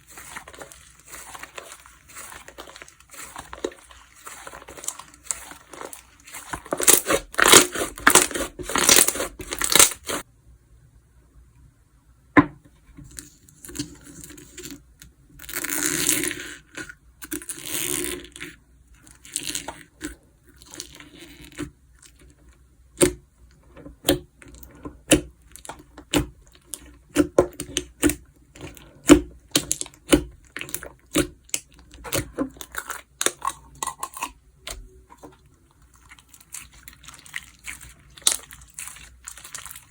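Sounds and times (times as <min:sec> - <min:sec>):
slime crinkly crackle: 0:00.0 - 0:10.2, 0:28.6 - 0:39.9.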